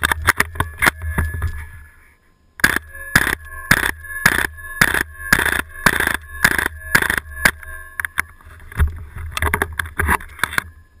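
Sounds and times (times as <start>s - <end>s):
sharp clicks: 2.6s - 8.4s.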